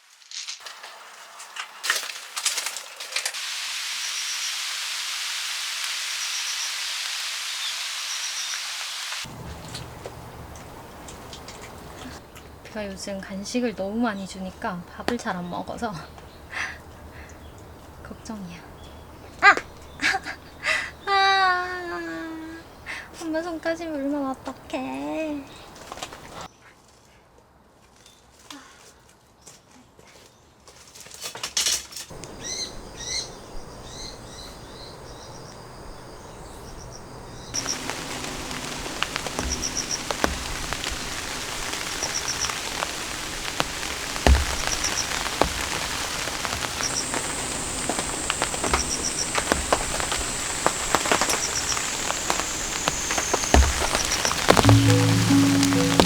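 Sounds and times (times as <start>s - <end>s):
rain falling in a forest: 0.0s - 23.8s, 24.8s - 26.5s, 32.1s - 56.0s
raindrops tapping a surface: 9.3s - 12.8s, 15.0s - 15.4s, 37.6s - 56.0s.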